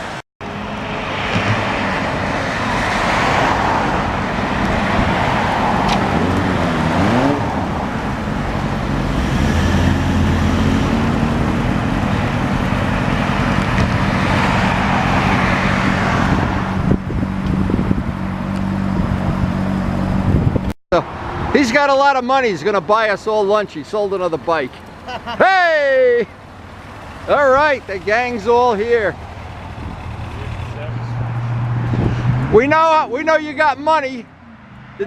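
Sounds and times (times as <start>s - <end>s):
motorcycle engine running: 26.8s - 30.9s.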